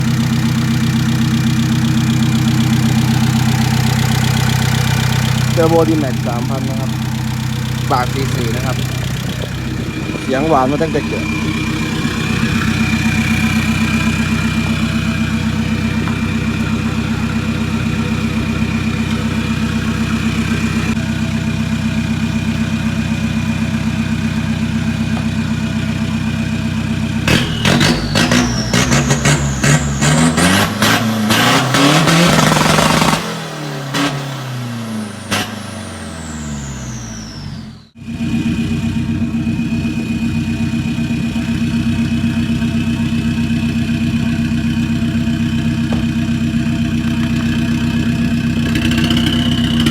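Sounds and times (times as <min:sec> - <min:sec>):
diesel engine idling and revving: 0:00.0 - 0:49.9
turbo whistle: 0:27.3 - 0:31.0.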